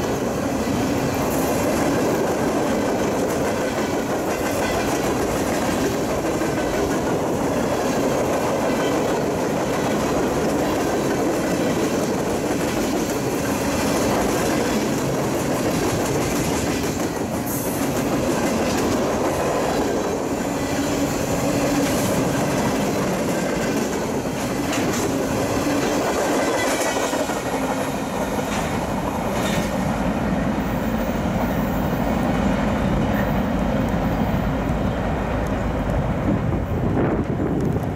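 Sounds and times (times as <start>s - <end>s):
train wheels rumbling and rattling: 0.0s - 37.9s
wheels clacking over rail joints: 1.0s - 30.1s.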